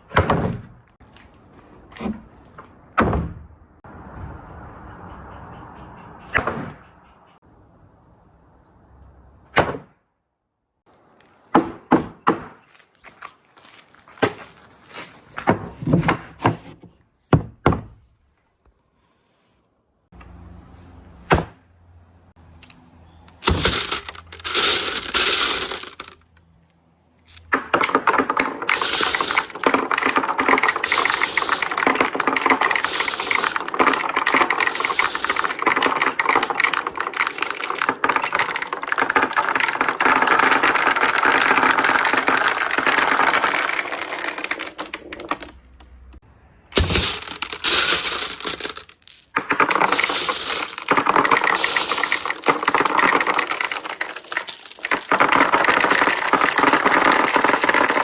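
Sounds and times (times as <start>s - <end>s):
marble clack and rattle: 22.6s - 26.4s, 27.3s - 46.1s, 46.8s - 58.0s
marbles rolling through marble run: 23.4s - 26.3s, 27.7s - 46.1s, 46.8s - 58.0s.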